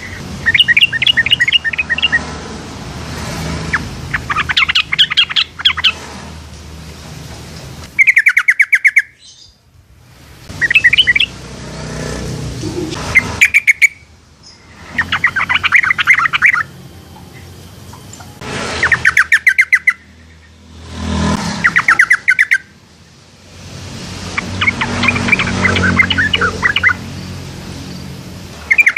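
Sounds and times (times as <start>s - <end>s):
birds bubbly chattering calls: 0.0s - 2.4s, 3.5s - 6.1s, 7.9s - 9.5s, 10.6s - 11.4s, 12.4s - 16.8s, 17.4s - 20.5s, 21.5s - 22.7s, 24.2s - 27.5s, 28.6s - 28.9s.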